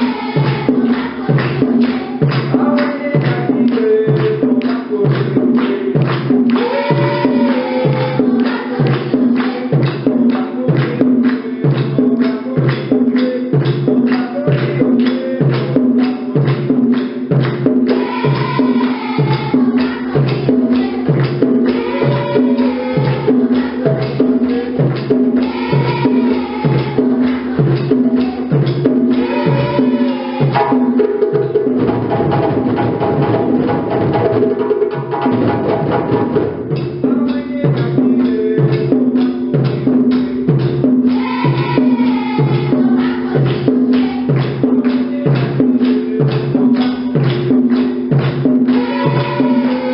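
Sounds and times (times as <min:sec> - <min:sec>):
djembe drum ensemble: 0:00.0 - 0:49.9.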